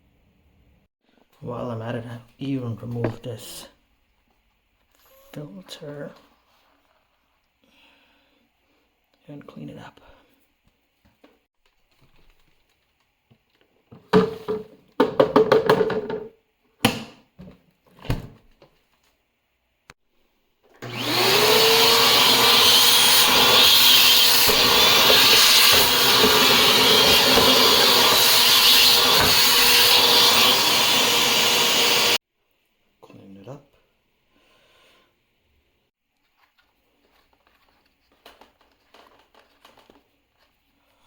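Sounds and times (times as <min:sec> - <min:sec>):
vacuum cleaner motor whining: 0:20.8 - 0:32.2.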